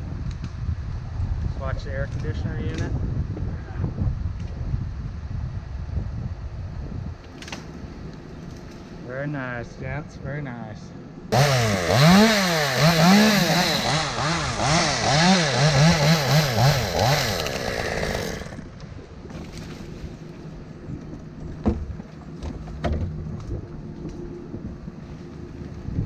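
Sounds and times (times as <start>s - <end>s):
chainsaw revving: 11.3s - 18.7s.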